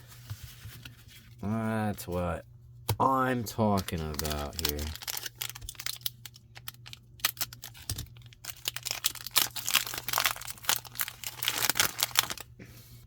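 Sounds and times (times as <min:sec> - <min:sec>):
faint low hum: 0:00.0 - 0:13.0
wrapper crinkling and tearing: 0:03.7 - 0:12.5.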